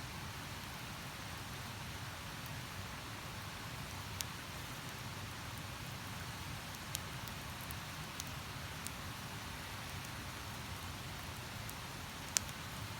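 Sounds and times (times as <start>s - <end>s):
campfire crackling: 3.3s - 12.9s.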